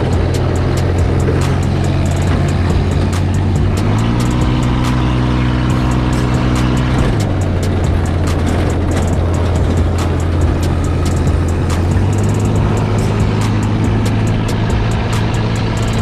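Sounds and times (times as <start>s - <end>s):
buggy engine revving: 0.0s - 16.0s
short rattles and clicks: 5.7s - 16.0s.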